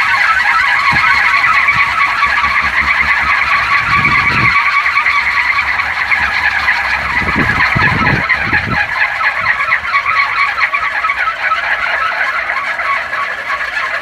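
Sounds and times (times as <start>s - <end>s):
wind on microphone: 0.0s - 9.9s
wooden propeller rattling whir: 0.0s - 14.0s.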